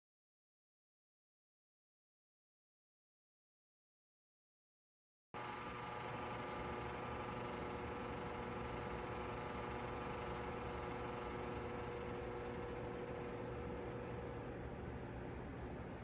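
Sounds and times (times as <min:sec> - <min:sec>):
space heater fan whirring: 0:05.4 - 0:16.0.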